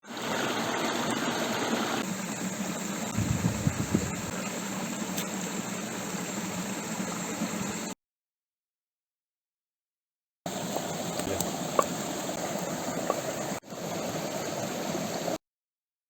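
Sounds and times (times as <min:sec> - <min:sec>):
creek water flowing: 0:00.0 - 0:07.9, 0:10.5 - 0:15.4.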